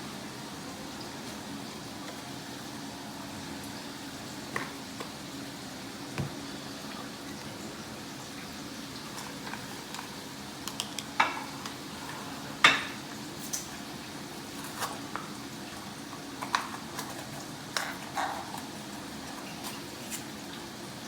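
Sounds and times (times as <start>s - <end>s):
kitchen containers and utensils clicking: 9.2s - 11.8s, 16.4s - 18.7s.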